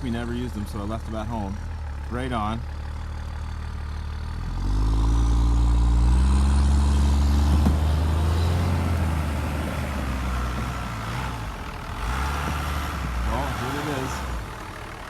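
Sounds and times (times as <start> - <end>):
vehicle engine accelerating: 3.4 - 15.0.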